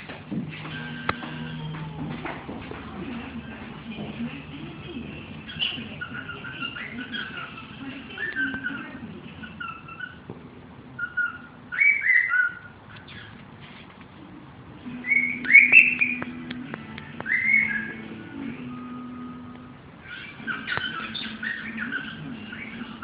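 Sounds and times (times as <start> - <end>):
cockatiel whistling: 5.5 - 8.8, 11.0 - 13.3, 14.9 - 23.0.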